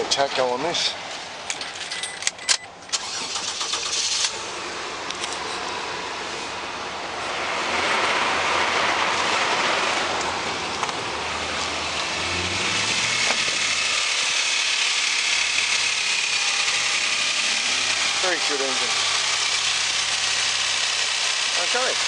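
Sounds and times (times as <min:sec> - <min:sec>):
car engine running: 0:03.0 - 0:22.0.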